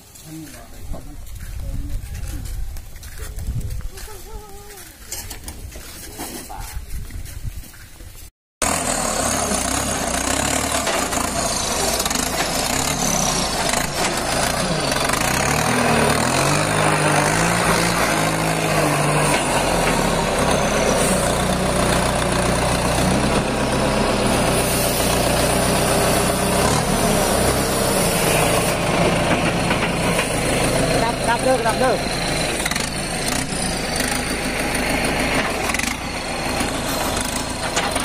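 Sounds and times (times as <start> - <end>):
heavy diesel engine running: 8.6 - 38.0.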